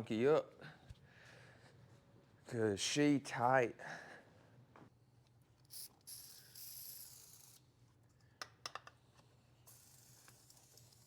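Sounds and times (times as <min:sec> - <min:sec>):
ratchet wrench clicks: 0:05.6 - 0:07.6, 0:09.7 - 0:11.0.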